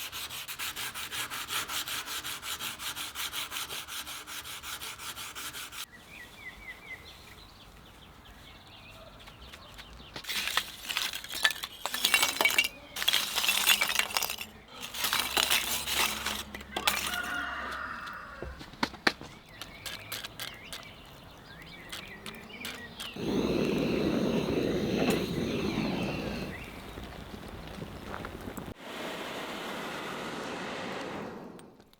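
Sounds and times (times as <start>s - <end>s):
metal scraping: 10.2s - 18.2s.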